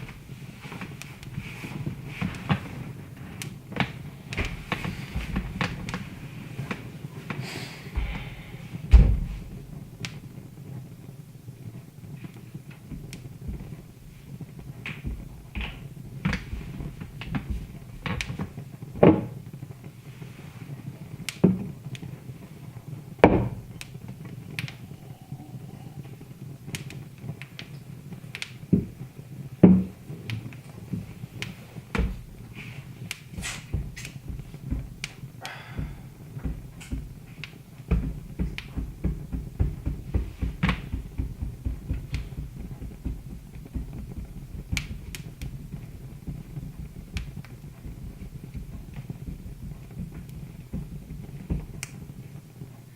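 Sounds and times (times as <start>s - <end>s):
low rumble of burning logs: 0.0s - 52.9s
wood fire crackling and popping: 0.0s - 52.9s.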